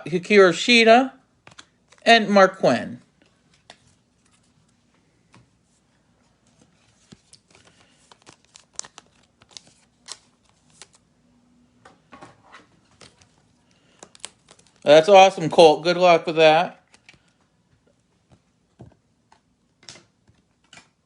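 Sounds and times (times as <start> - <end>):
cards and wrappers crinkling: 6.4 - 11.1, 12.8 - 15.4, 16.8 - 17.4.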